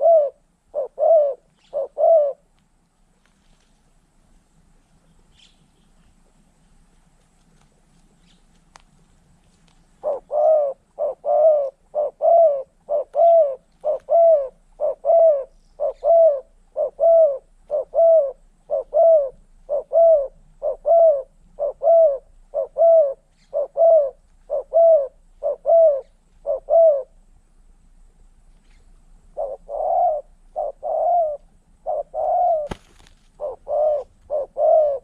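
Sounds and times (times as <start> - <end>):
dove cooing: 0.0 - 2.5, 10.0 - 27.2, 28.7 - 35.0.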